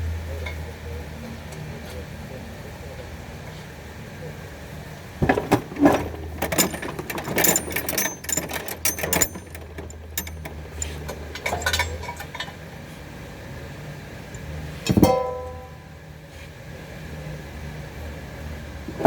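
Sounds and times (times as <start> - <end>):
metal tools clinking: 5.2 - 12.6
loud metal clang: 15.0 - 15.8.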